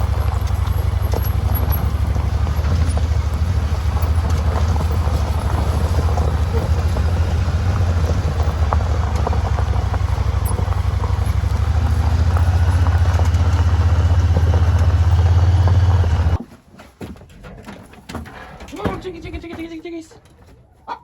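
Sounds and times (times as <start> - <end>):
utility vehicle engine running: 0.0 - 16.4.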